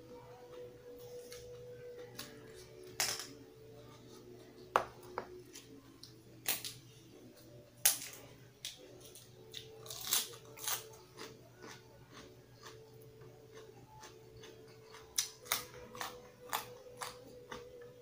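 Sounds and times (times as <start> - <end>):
person chewing with crunches: 8.1 - 18.0.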